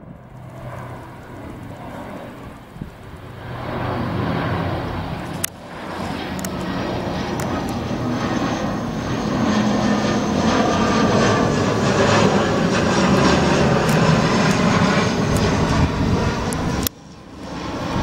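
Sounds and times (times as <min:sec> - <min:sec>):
airliner engines passing: 0:00.0 - 0:18.0.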